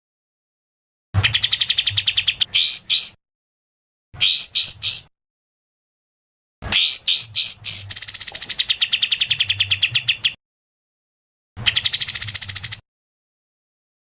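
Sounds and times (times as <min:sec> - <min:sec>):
songbird whistles and fast trill: 0:01.2 - 0:03.2, 0:04.2 - 0:05.1, 0:06.7 - 0:10.4, 0:11.6 - 0:12.8.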